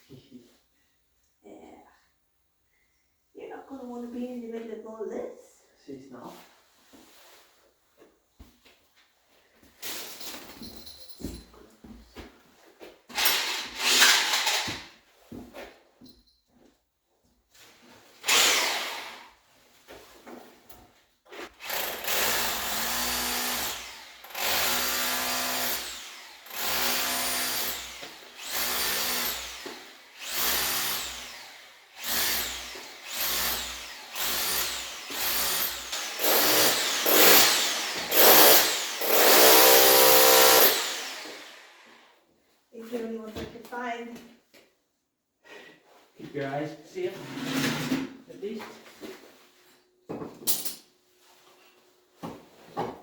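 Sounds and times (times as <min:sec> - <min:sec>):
power tool raking mortar: 0:21.4 - 0:42.1.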